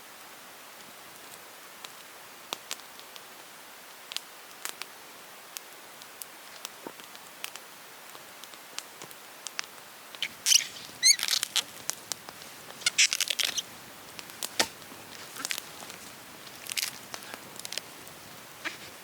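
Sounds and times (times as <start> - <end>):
brief squeak: 10.2 - 11.6, 12.8 - 13.6
crinkly rustling: 10.2 - 19.0.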